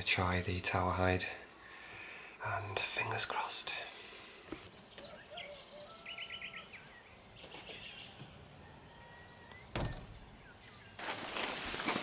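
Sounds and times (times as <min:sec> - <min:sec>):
birds singing: 0:00.0 - 0:11.1
van door being shut: 0:09.7 - 0:10.2.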